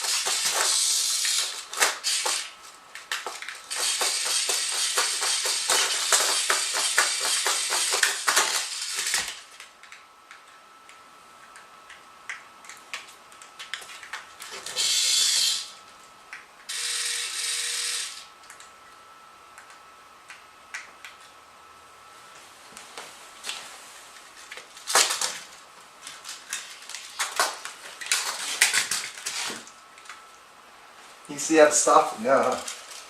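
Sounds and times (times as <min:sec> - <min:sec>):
toy mechanism clicking and buzzing: 0:00.0 - 0:10.4, 0:12.3 - 0:15.8, 0:16.7 - 0:18.7, 0:24.4 - 0:25.4, 0:26.2 - 0:30.2, 0:32.1 - 0:33.0.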